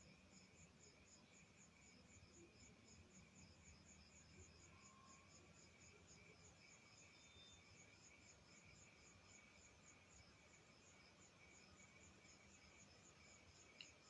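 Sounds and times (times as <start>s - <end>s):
faint insect chirping: 0.0s - 14.0s.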